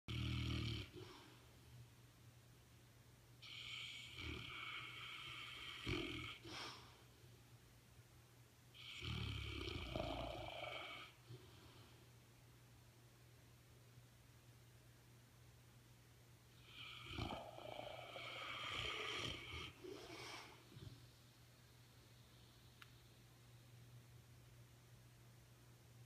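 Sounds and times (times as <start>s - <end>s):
dog snoring: 0.1s - 1.4s, 3.4s - 6.9s, 8.8s - 11.8s, 16.5s - 21.1s.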